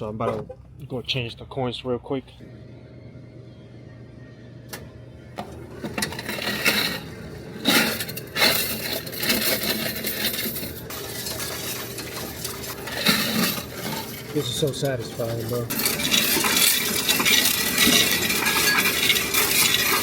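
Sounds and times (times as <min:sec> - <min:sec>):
coins clinking in machine: 0:05.8 - 0:20.0.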